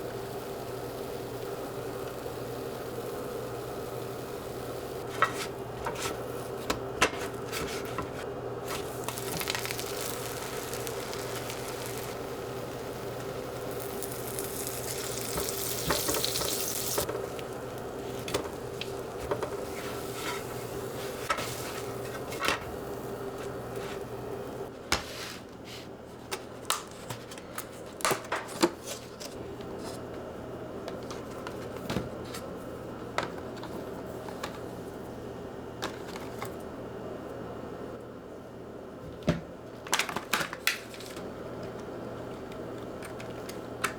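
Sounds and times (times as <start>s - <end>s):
steady low hum: 0.0s - 24.7s
food sizzling in a frying pan: 8.7s - 22.0s.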